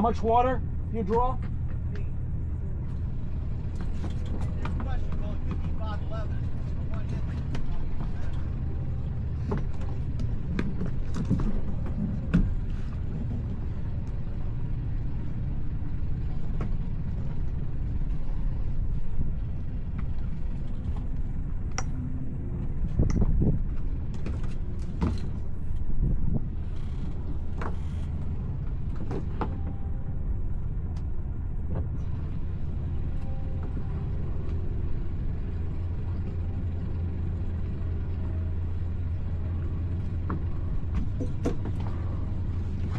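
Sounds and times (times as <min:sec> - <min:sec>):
boat engine humming: 0:00.0 - 0:42.9
knocks and clunks: 0:40.2 - 0:42.2.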